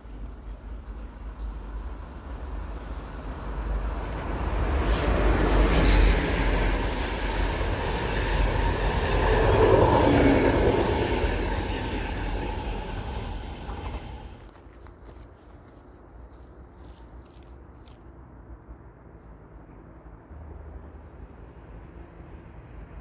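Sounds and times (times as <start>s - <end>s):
passenger train rumble: 0.0s - 20.5s.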